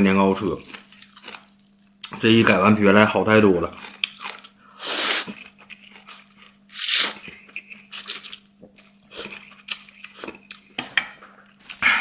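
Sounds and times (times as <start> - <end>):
person slurping: 4.8 - 5.5, 6.7 - 7.5.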